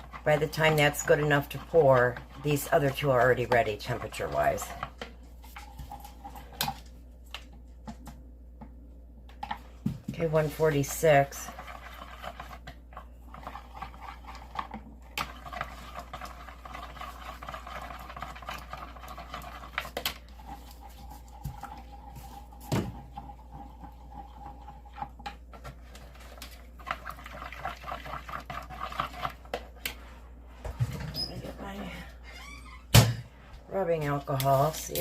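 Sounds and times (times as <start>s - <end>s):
utensil scraping a container: 10.2s - 30.2s.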